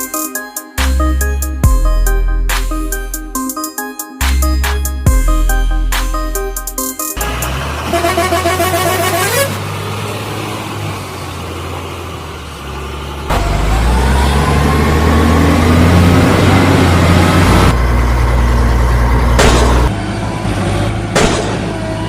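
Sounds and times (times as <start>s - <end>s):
heavy vehicle engine droning: 4.5s - 22.0s.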